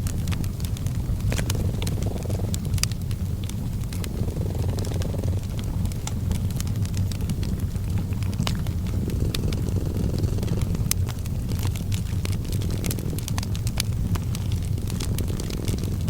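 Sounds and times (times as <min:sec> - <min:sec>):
cat purring: 0:00.0 - 0:16.0
fireplace crackling and popping: 0:00.0 - 0:16.0.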